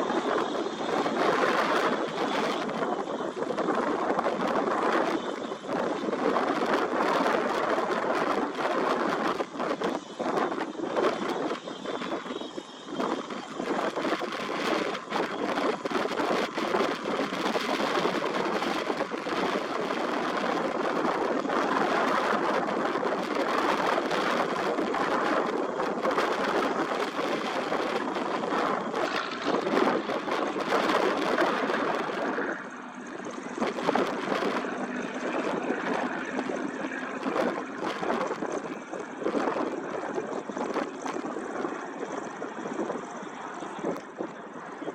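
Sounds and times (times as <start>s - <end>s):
helicopter turbines and rotor: 0.0s - 44.9s.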